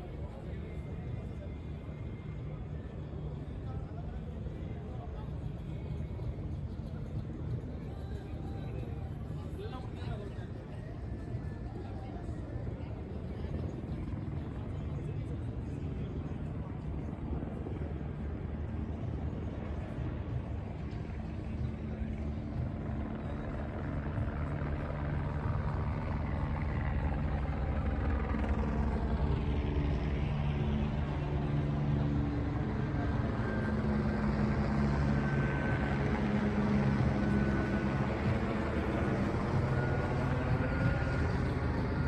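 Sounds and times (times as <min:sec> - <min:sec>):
large engine humming: 0:20.4 - 0:42.0.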